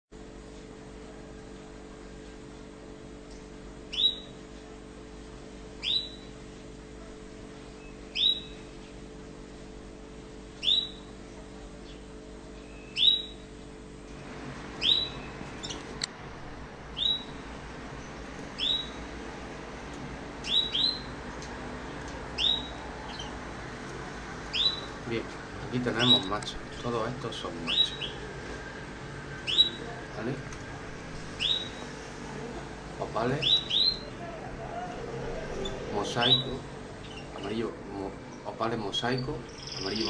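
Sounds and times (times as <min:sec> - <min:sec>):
canary call notes: 0:03.9 - 0:04.4, 0:05.8 - 0:06.3, 0:08.1 - 0:08.7, 0:10.6 - 0:11.1, 0:12.8 - 0:13.5, 0:14.6 - 0:40.0.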